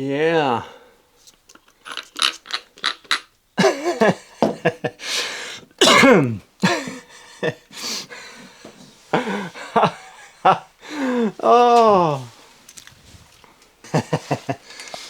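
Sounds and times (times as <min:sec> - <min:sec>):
man groaning: 0:11.0 - 0:12.3.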